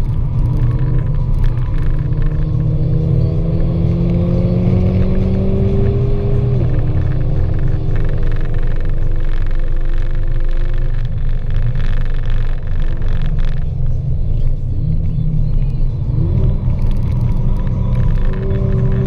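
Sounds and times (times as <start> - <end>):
tyre and road noise: 0.0 - 19.0.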